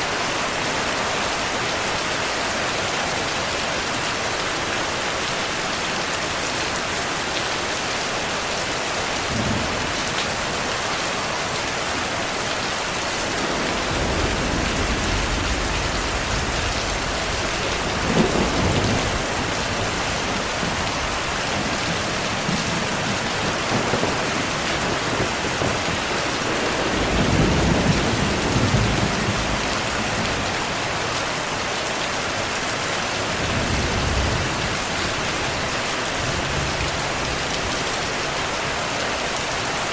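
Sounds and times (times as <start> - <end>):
heavy rain: 0.0 - 39.9
thunder rumbling: 9.2 - 30.8.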